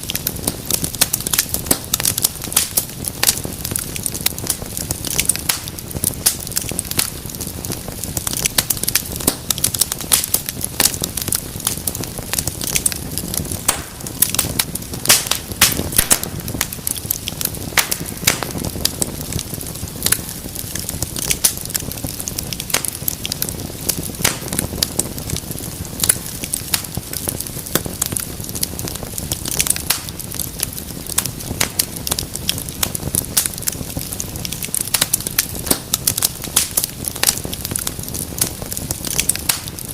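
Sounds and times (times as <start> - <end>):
sharp pops and snaps: 0.0 - 39.9
soft hiss of flame: 0.0 - 39.9
wood fire crackling: 0.0 - 39.9.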